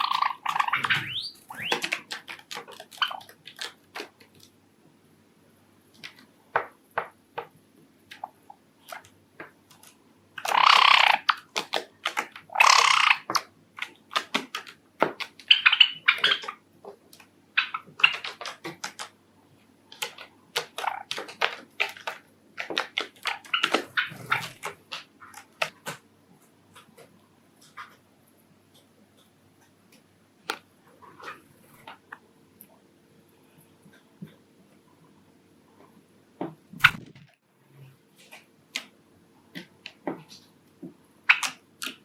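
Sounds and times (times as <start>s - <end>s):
sparrows ticking and chirping: 0.0s - 2.1s.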